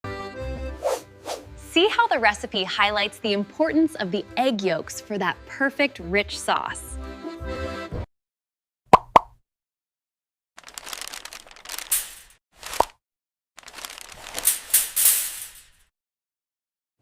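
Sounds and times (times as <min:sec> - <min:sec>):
crinkling crackling noise: 0:10.6 - 0:13.0, 0:13.6 - 0:15.8.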